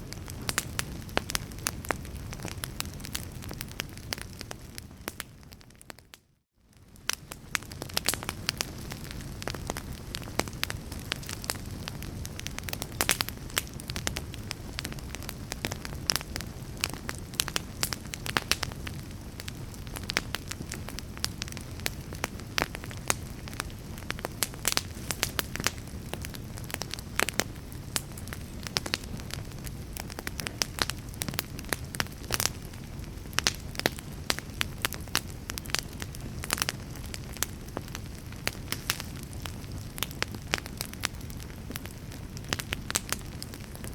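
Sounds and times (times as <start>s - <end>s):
fire crackling and popping: 0.0s - 43.9s
low rumble of flames: 0.0s - 43.9s.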